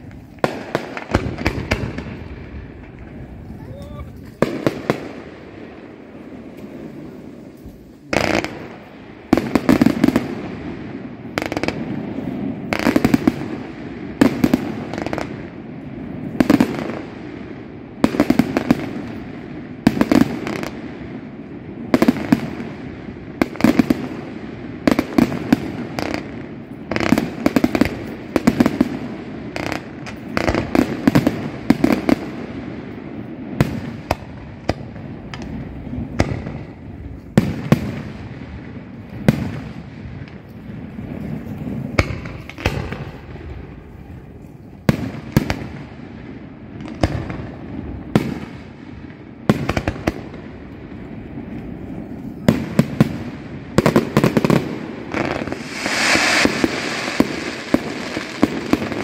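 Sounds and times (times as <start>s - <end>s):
fireworks crackling: 0.0s - 59.0s
firework shells bursting: 55.2s - 59.0s.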